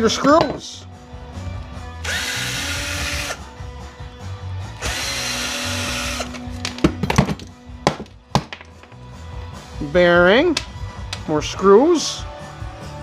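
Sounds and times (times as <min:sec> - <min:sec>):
power drill whining: 0:02.0 - 0:03.5, 0:04.8 - 0:06.5.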